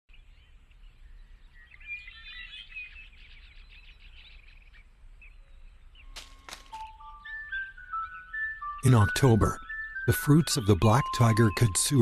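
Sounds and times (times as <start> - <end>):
birds chirping and twittering: 0.1 - 12.0.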